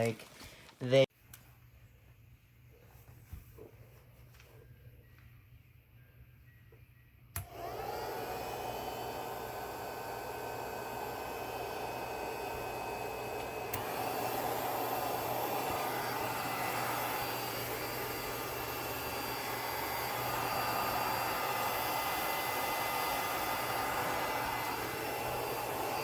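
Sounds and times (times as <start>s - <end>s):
fan heater blowing: 7.3s - 26.0s.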